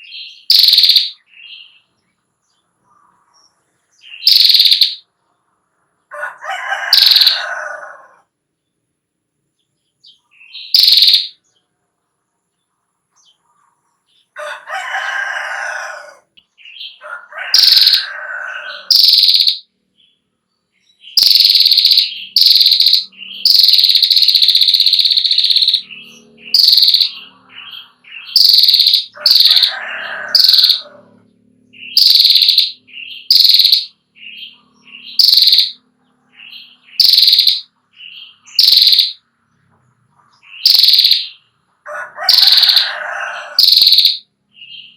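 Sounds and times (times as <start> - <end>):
bird chattering call: 0.0 - 1.8, 4.0 - 5.1, 6.8 - 7.7, 10.4 - 11.4, 16.6 - 19.7, 21.1 - 39.2, 40.2 - 44.9.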